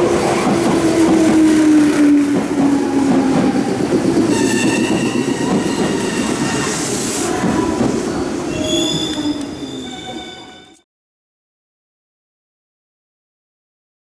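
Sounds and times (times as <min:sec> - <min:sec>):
train rumbling: 0:00.0 - 0:10.8.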